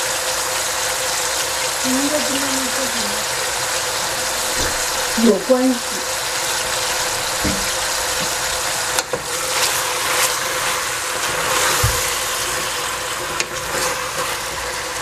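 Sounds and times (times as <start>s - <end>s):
vegetables sizzling in a pot: 0.0s - 15.0s
spatula knocking against pot: 6.9s - 8.4s.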